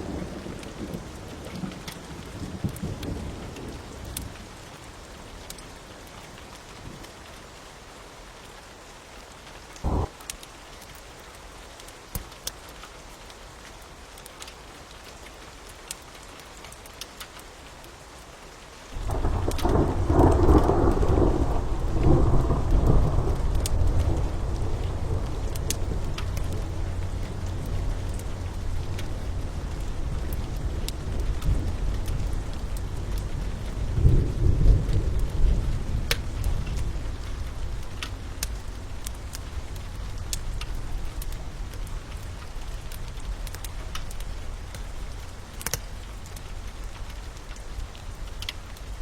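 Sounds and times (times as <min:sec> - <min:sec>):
steady rain: 0:00.0 - 0:49.0
faint crackles: 0:09.4 - 0:49.0
thunder rumbling: 0:09.8 - 0:10.2, 0:19.0 - 0:45.2.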